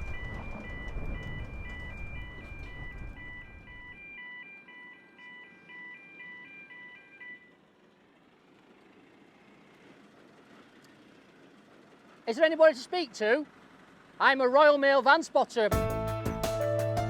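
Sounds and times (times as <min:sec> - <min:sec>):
low rumbling noise: 0:00.0 - 0:04.0
electronic beeping melody: 0:00.0 - 0:07.5.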